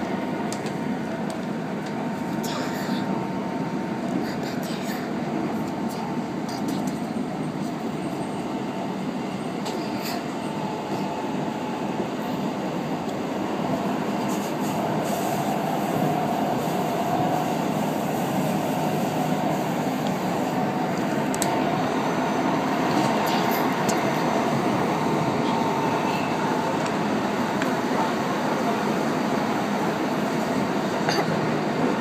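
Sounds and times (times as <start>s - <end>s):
faint train whine: 0.0s - 32.0s
train wheels rumbling: 0.0s - 32.0s.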